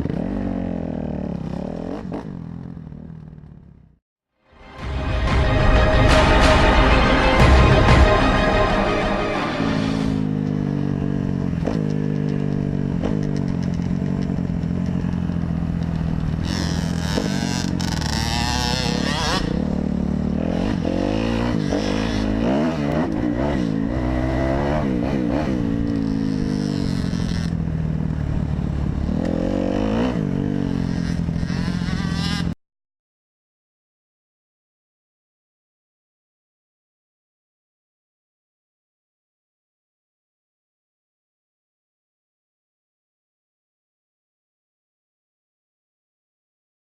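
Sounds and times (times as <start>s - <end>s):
dirt bike engine revving: 9.4s - 32.6s.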